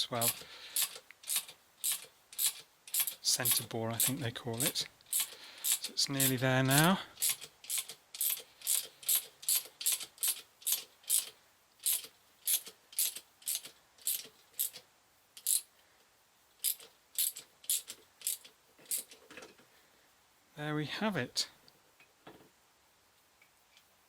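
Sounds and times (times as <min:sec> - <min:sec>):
tool clicking rapidly: 0:00.2 - 0:14.8, 0:16.6 - 0:19.2.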